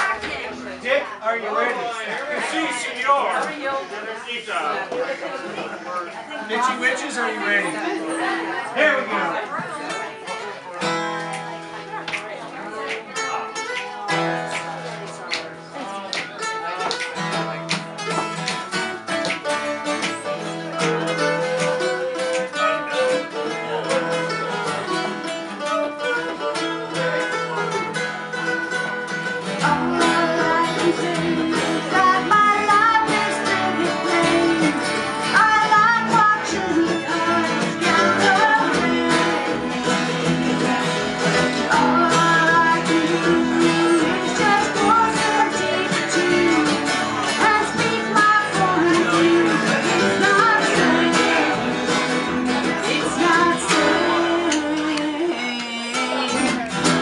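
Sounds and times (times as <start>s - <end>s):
acoustic guitar strumming: 0.0s - 3.4s, 6.6s - 57.0s
person singing: 28.9s - 57.0s.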